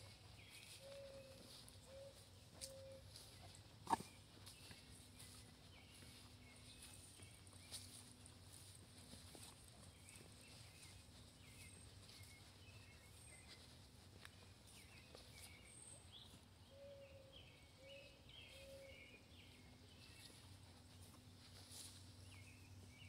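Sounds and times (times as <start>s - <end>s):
faint bird chirps: 0.0s - 7.1s.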